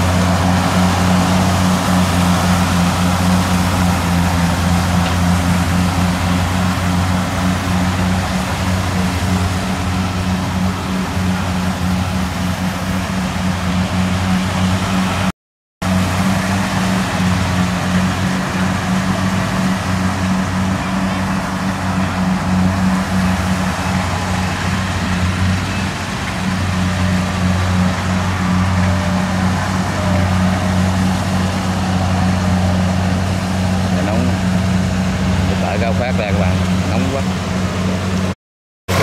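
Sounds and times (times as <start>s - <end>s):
combine harvester diesel engine: 0.0s - 39.0s.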